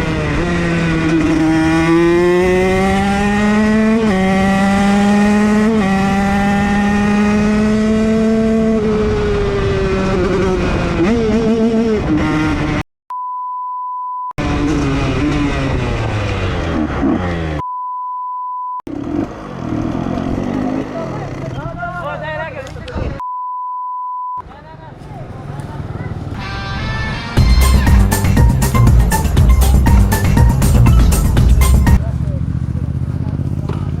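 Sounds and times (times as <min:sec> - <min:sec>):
motocross bike engine revving: 0:00.0 - 0:12.8, 0:14.4 - 0:17.6, 0:18.9 - 0:23.0
high-pitched censor beeps: 0:13.1 - 0:14.4, 0:17.6 - 0:18.8, 0:23.2 - 0:24.4.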